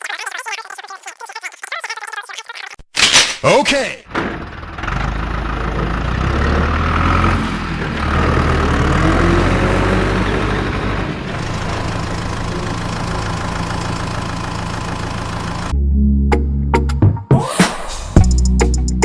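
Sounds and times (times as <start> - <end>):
small water pump engine running: 11.3 - 15.7.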